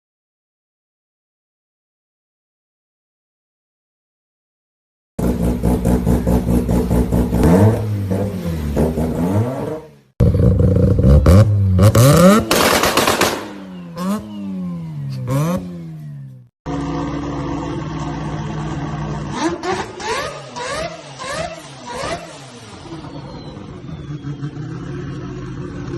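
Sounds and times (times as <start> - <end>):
rotary car engine revving: 5.2 - 25.9.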